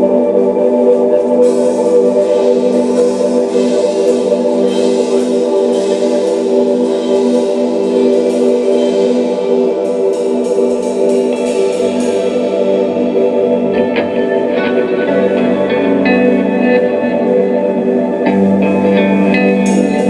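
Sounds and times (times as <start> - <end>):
bright hissing wash: 0.6 - 15.6
rock band playing chords: 1.4 - 20.0.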